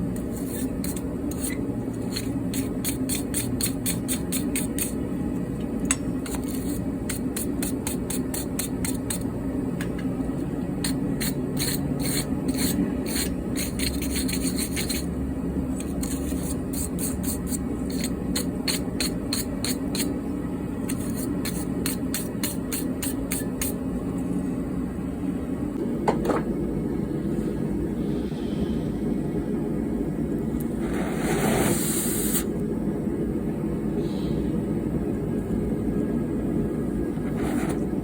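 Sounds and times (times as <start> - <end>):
steady low hum: 0.0 - 38.0
file rasping on steel: 0.2 - 5.0, 10.8 - 15.1, 15.8 - 20.1.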